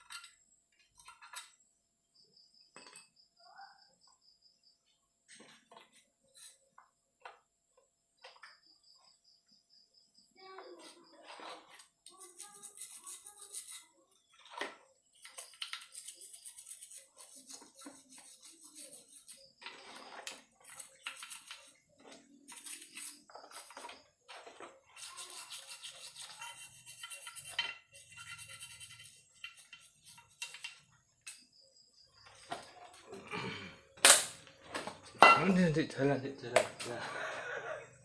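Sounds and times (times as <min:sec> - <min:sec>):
brush scrubbing metal: 0:10.8 - 0:14.5, 0:15.2 - 0:30.9.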